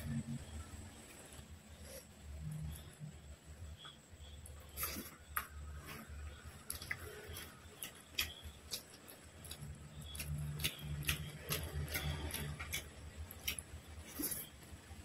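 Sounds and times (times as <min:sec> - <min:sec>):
wet chewing and mouth clicks: 0:04.6 - 0:14.8.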